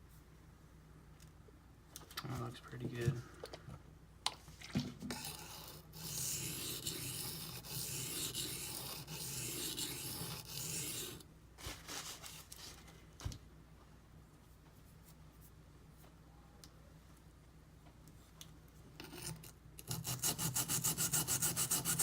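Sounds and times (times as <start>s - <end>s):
knife scraping on sharpening stone: 5.1s - 11.2s.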